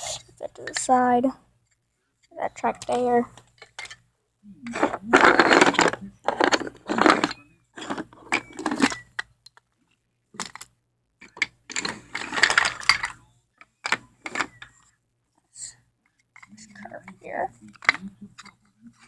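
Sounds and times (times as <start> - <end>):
wooden toy track pieces clattering: 4.8 - 9.3, 10.4 - 13.2.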